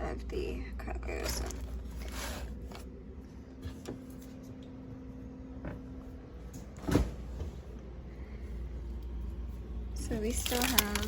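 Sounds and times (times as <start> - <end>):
steady low hum: 0.0 - 11.0
food packages being handled: 10.1 - 11.0.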